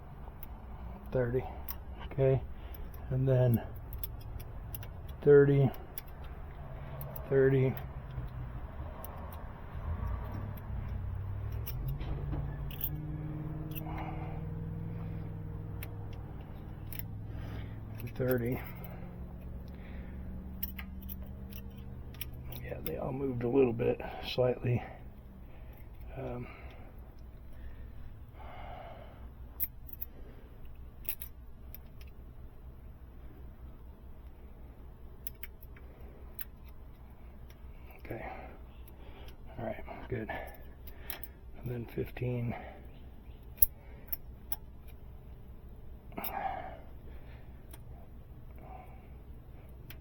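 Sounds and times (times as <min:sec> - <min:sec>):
low mechanical hum: 0:00.0 - 0:50.0
sharp metallic clicks: 0:00.3 - 0:19.8, 0:20.5 - 0:23.5, 0:43.3 - 0:45.0.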